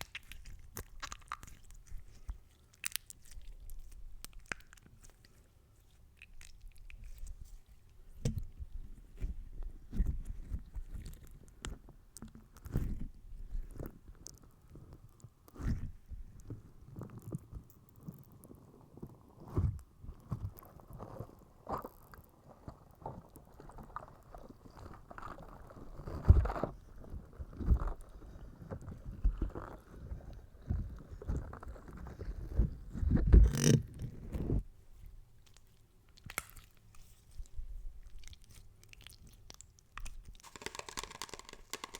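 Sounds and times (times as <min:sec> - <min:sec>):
slime squelching: 0:00.0 - 0:07.8.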